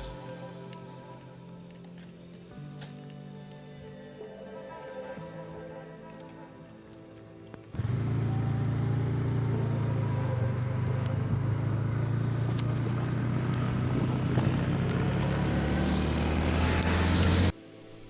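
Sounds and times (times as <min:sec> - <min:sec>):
engine droning: 0:07.8 - 0:17.6.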